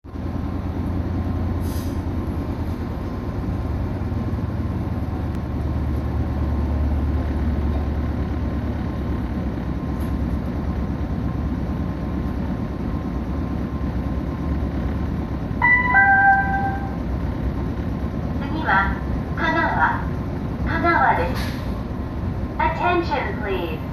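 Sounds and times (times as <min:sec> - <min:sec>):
train running with low rumble: 0:00.0 - 0:23.9
two-note descending chime: 0:15.6 - 0:17.0.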